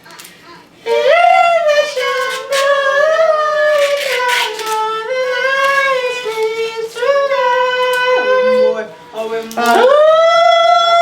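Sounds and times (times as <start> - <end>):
person singing long notes: 0.5 - 8.9.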